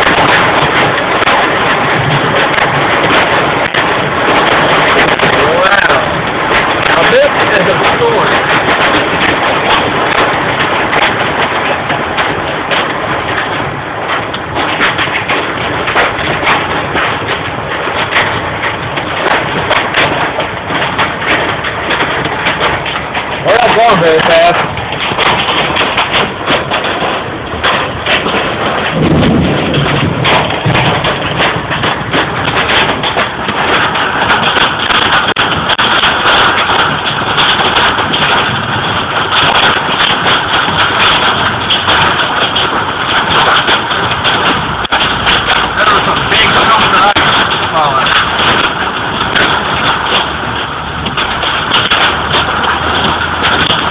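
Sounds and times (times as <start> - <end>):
hail pelting a car: 0.0 - 53.9
heavy rain rushing: 0.0 - 53.9
low rumble: 0.0 - 53.9.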